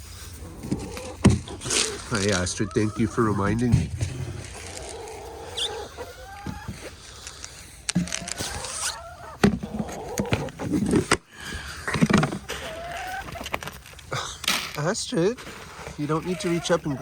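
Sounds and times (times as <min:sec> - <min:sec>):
hens calling softly: 0:00.4 - 0:06.9, 0:15.8 - 0:17.0.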